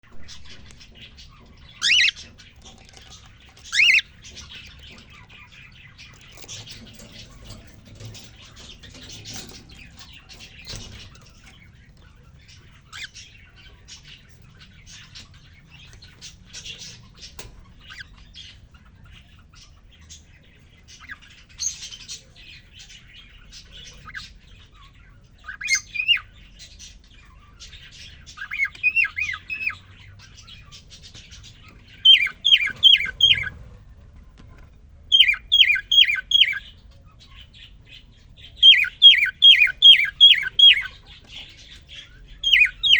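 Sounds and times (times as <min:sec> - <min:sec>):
cockatiel chirping and whistling: 0:01.8 - 0:02.2, 0:03.7 - 0:04.1, 0:25.5 - 0:26.3, 0:28.4 - 0:29.8, 0:32.1 - 0:33.5, 0:35.2 - 0:36.6, 0:38.6 - 0:40.9, 0:42.4 - 0:42.9.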